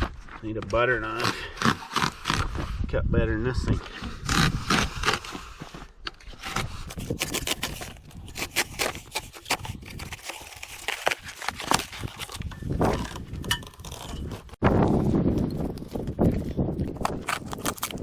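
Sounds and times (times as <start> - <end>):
knife cutting cardboard: 1.1 - 2.8, 3.9 - 14.6
cardboard tearing: 6.3 - 14.6, 17.0 - 18.0.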